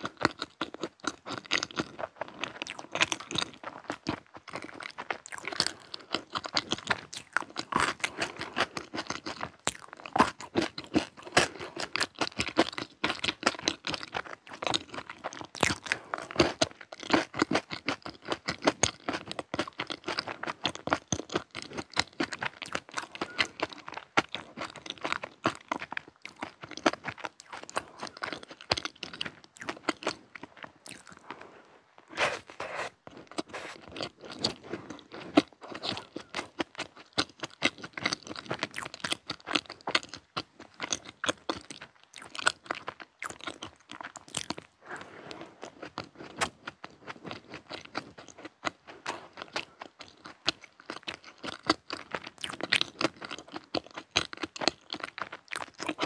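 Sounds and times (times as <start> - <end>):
crisp crunching and chewing: 0.0 - 56.0.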